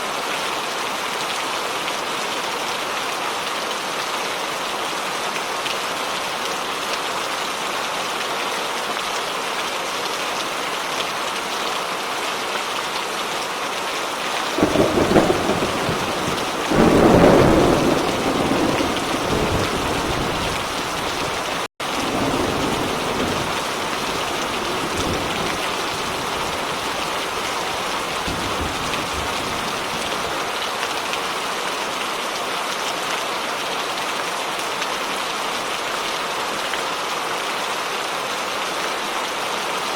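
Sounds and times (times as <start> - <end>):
heavy rain: 0.0 - 39.9
rolling thunder: 14.5 - 30.5.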